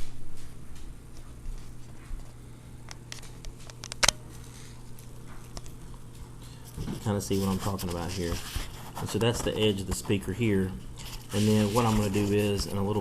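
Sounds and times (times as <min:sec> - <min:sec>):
steady low hum: 0:00.0 - 0:13.0
hands scraping speaker foam: 0:07.0 - 0:10.1, 0:11.1 - 0:13.0.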